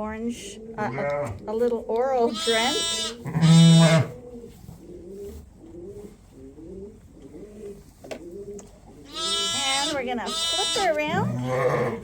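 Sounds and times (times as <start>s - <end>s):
pigeon cooing softly: 3.9s - 9.6s.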